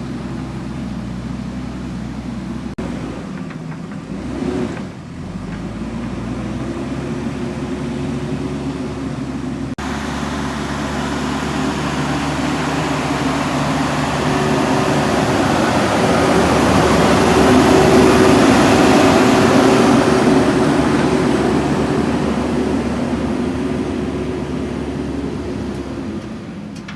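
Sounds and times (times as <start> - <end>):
backhoe diesel engine running: 0.0 - 26.9.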